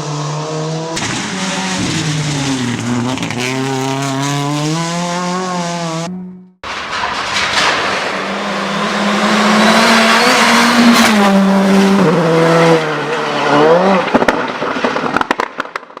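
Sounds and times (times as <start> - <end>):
rally car engine revving high: 0.0 - 6.6, 7.8 - 14.4
exhaust pops and crackles: 1.0 - 4.8, 13.9 - 16.0.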